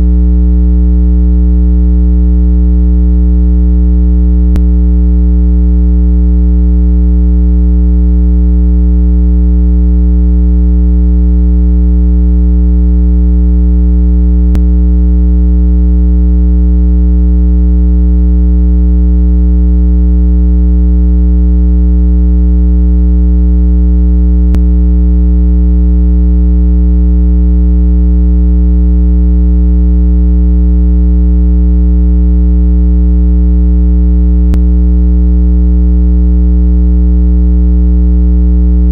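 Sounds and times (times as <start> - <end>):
low electronic hum: 0.0 - 3.5, 4.2 - 18.5, 23.3 - 26.2, 34.2 - 35.2.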